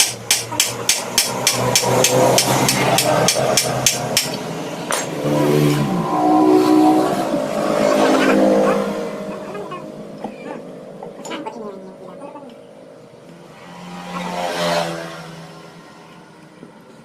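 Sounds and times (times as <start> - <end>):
hammer striking metal engine: 0.0 - 5.4
passing vehicle engine: 0.0 - 17.0.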